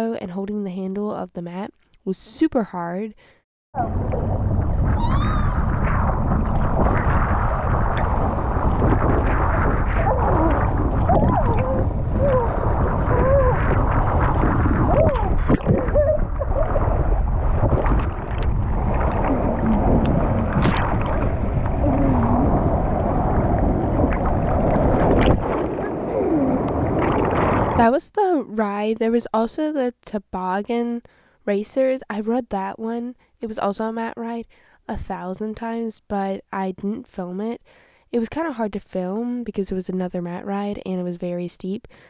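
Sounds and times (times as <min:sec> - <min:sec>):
water rushing down slide: 0:03.8 - 0:27.8
wind buffeting microphone: 0:03.8 - 0:27.8.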